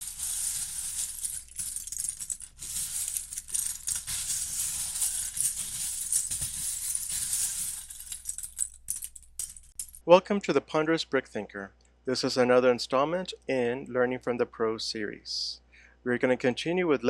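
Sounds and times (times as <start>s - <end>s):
plastic bricks rattling: 0.0s - 10.0s.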